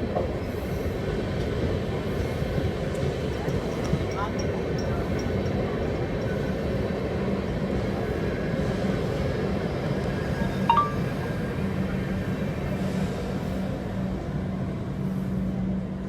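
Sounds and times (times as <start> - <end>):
electric train rumbling: 0.0 - 16.0
brief high tone: 10.7 - 11.3.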